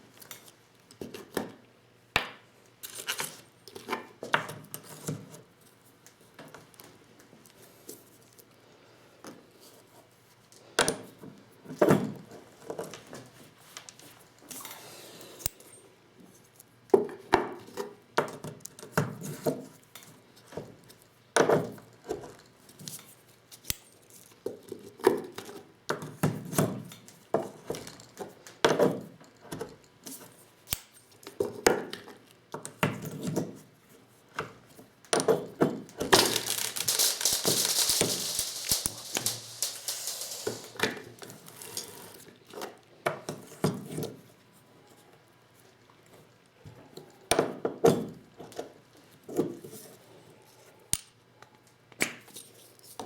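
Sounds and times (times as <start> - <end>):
metal tools clinking and knocking: 36.2 - 40.9
hissing rattle: 36.2 - 41.0.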